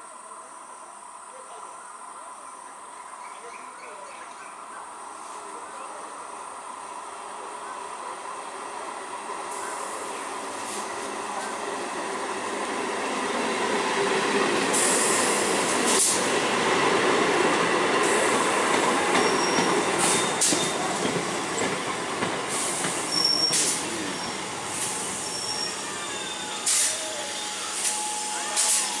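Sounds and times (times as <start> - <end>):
train wheels rumbling on rails: 9.1 - 27.0
brief hisses: 22.5 - 24.0, 26.5 - 29.0
high-pitched wheel squeals: 23.1 - 24.4, 25.2 - 29.0.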